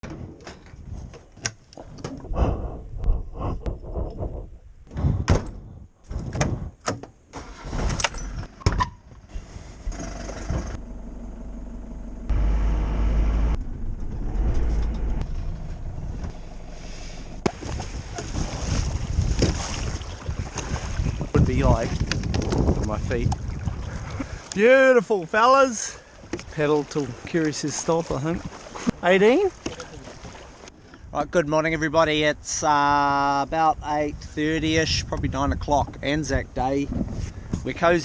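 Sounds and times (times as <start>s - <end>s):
vehicle engine rumbling: 7.4s - 23.4s.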